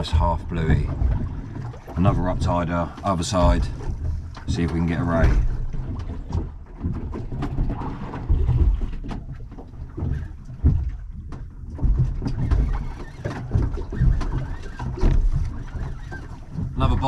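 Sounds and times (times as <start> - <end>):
water slapping boat hull: 0.0 - 17.0
gear clicking and knocking: 3.4 - 17.0.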